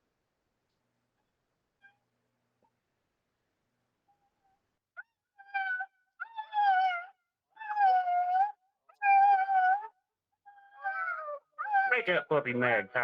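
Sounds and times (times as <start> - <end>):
puppy yelping: 5.0 - 12.0
puppy crying high mewing cries: 5.4 - 12.0.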